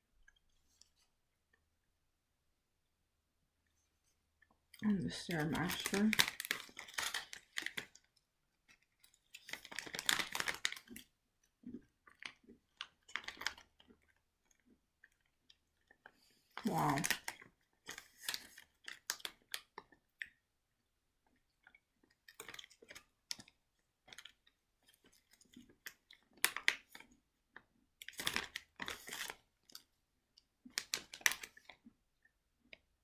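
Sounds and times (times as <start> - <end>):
chewing and crunching cookie: 3.6 - 33.0
plastic bag crackling: 5.0 - 8.0, 8.7 - 11.0.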